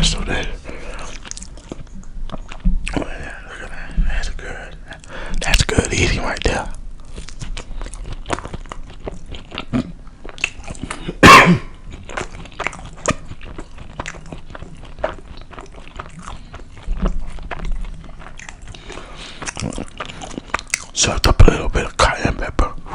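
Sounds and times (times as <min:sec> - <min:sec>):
close chewing with mouth clicks: 0:00.8 - 0:03.1, 0:06.4 - 0:21.1.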